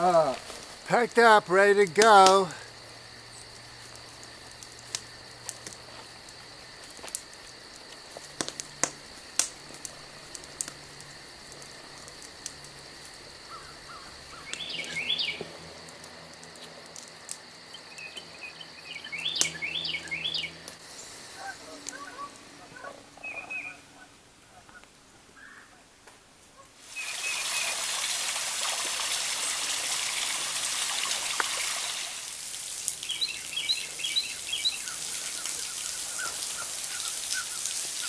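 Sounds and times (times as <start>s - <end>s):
bird chirps: 13.5s - 15.4s, 17.9s - 20.6s, 21.4s - 23.8s, 33.0s - 35.5s.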